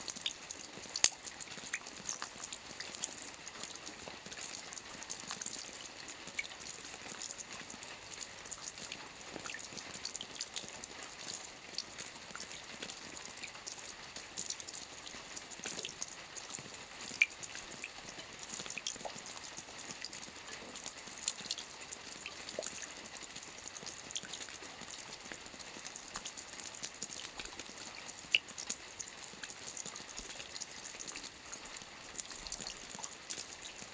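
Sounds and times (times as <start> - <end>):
drops ticking and dripping: 0.1 - 33.9.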